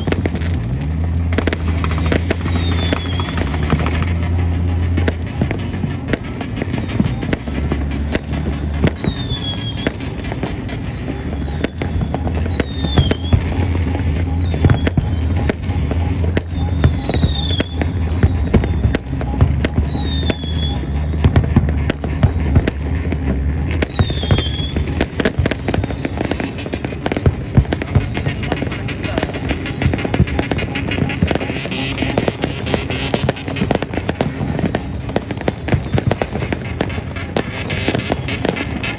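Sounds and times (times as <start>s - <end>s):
fireworks bangs and crackles: 0.0s - 38.9s
falling whistle: 2.4s - 3.4s, 9.0s - 9.9s, 11.4s - 13.4s, 16.4s - 19.1s, 19.8s - 21.0s, 23.9s - 24.8s.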